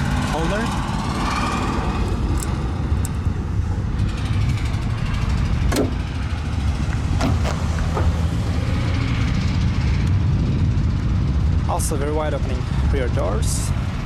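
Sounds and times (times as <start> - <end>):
car door knocking: 5.7 - 6.1, 7.2 - 8.1
car door latch clicking: 5.7 - 6.2, 7.2 - 8.1.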